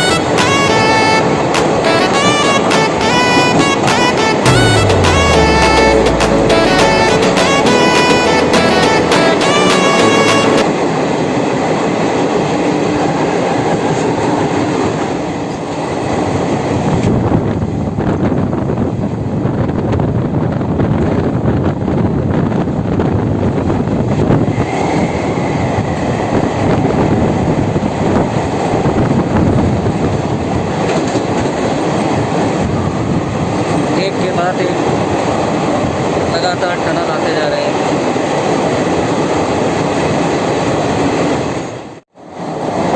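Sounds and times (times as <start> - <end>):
train wheels rumbling on rails: 9.4 - 42.9.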